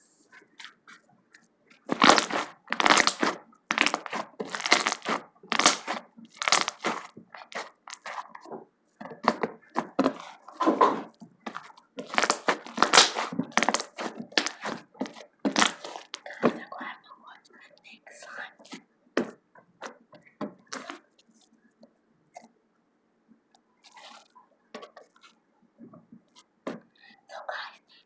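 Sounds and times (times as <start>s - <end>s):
slime popping: 1.9s - 8.2s, 11.5s - 16.2s.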